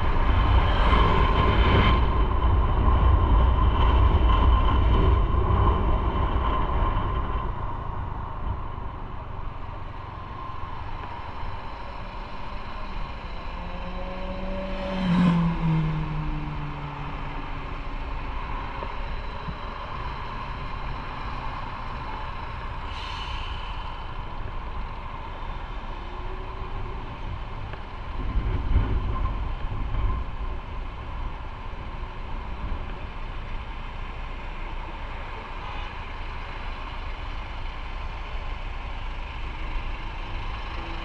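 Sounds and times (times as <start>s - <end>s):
motorcycle engine: 8.9s - 22.9s
vehicle passing: 11.6s - 18.8s.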